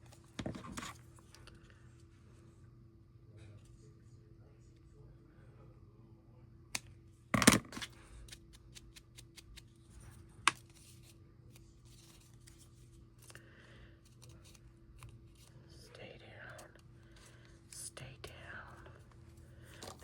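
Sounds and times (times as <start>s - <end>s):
paper rustling: 9.2s - 15.5s.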